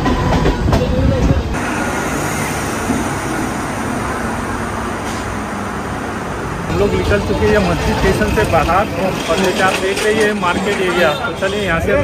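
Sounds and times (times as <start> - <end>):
train rumble and wind: 0.0 - 12.0
station platform din: 1.5 - 9.8.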